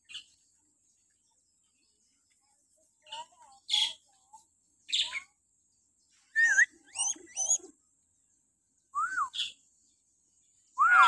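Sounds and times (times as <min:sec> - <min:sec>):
bird shrill whistled calls: 0:06.4 - 0:07.6, 0:09.0 - 0:09.5, 0:10.8 - 0:11.0.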